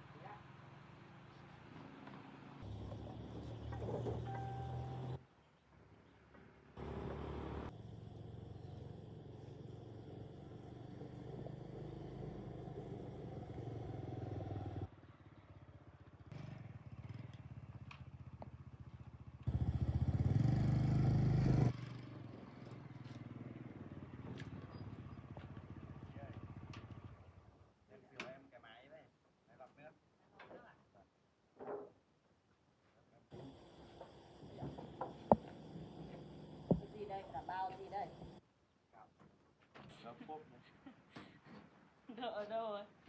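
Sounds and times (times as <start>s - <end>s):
small engine running: 6.8s - 14.9s, 18.9s - 23.6s, 33.3s - 38.4s.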